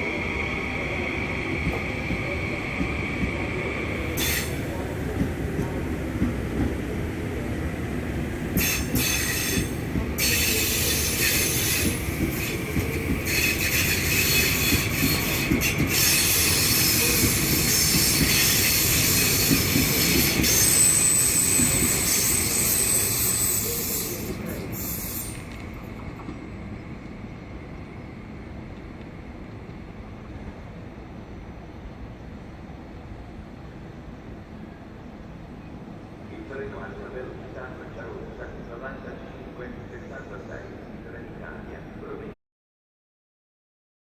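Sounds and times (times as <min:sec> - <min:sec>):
train wheels on rail: 0:00.0 - 0:38.2
low train rumble: 0:00.0 - 0:42.4
high-pitched wheel squeal: 0:13.3 - 0:25.5.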